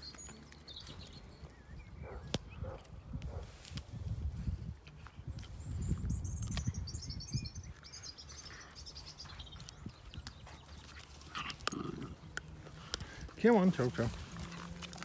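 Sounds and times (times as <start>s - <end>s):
songbird twittering: 5.5s - 11.0s.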